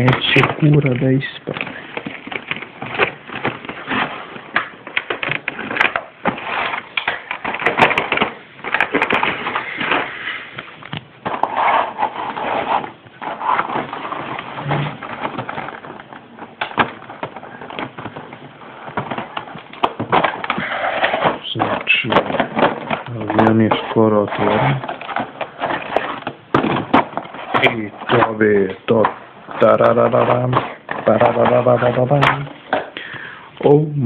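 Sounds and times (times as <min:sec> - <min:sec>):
plastic packaging crinkling: 0:00.0 - 0:33.8.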